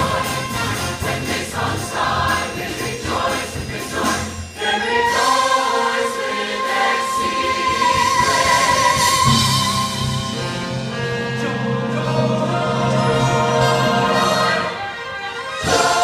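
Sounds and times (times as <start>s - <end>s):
choir singing: 0.0s - 16.0s
orchestra playing: 0.0s - 16.0s.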